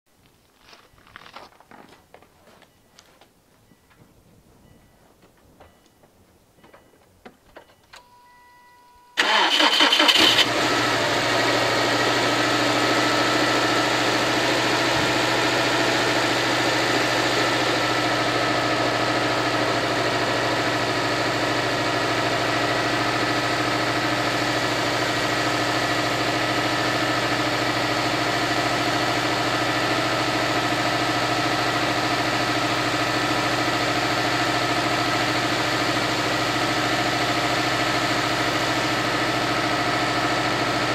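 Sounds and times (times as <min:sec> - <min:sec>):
short beep: 0:07.6 - 0:09.2
starter cranking: 0:09.2 - 0:10.5
car engine idling: 0:09.2 - 0:40.9.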